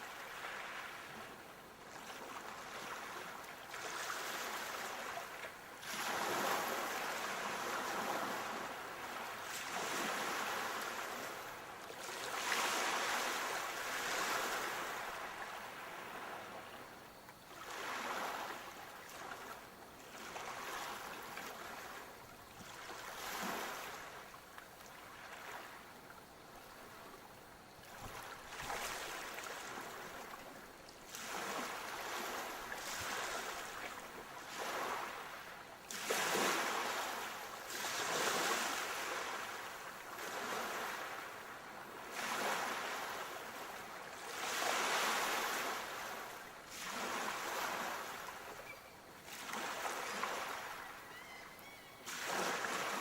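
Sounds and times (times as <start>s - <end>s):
sea waves washing in: 1.9s - 16.8s, 31.1s - 48.6s, 52.1s - 53.0s.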